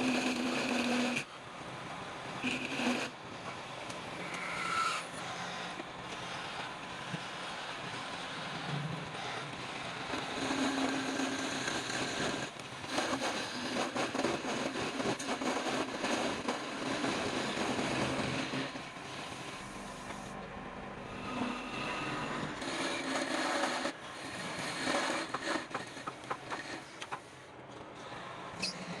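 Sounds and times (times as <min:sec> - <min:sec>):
power tool on wood: 0:00.0 - 0:01.3, 0:02.4 - 0:03.2, 0:04.2 - 0:20.3, 0:21.1 - 0:27.3
scraping on wood: 0:04.2 - 0:20.3, 0:21.2 - 0:27.4.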